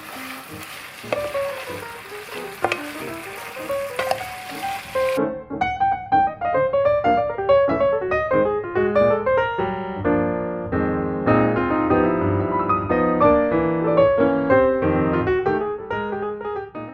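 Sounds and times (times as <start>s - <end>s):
piano music with quick notes: 0.0s - 16.9s.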